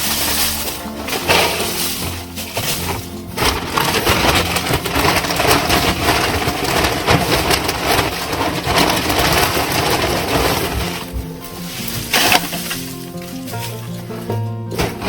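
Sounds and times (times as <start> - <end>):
wood shavings rustling: 0.0 - 15.0.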